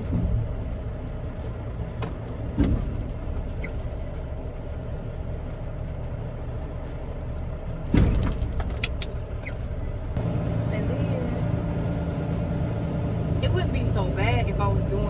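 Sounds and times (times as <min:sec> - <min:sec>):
diesel truck engine running: 0:00.0 - 0:15.0
thump inside truck cab: 0:02.0 - 0:03.7, 0:07.9 - 0:08.9.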